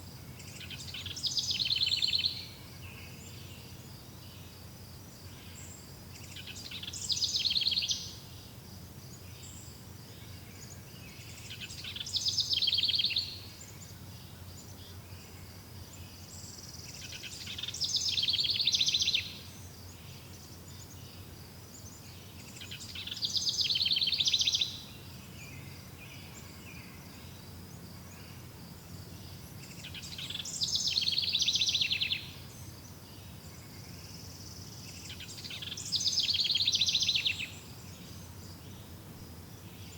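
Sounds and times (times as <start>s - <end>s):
songbird trilling: 0.6s - 2.5s, 16.9s - 19.4s, 22.6s - 24.9s, 29.3s - 32.6s, 35.0s - 38.8s.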